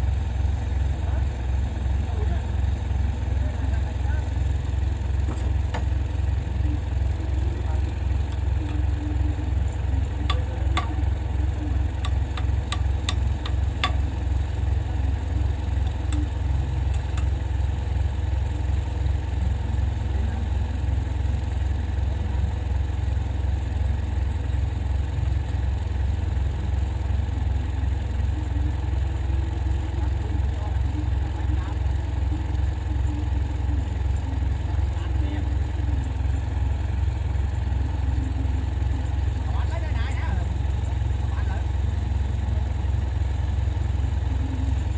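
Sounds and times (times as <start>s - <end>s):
diesel machinery engine drone: 0.0s - 44.9s
sharp metallic clicks: 11.9s - 14.3s.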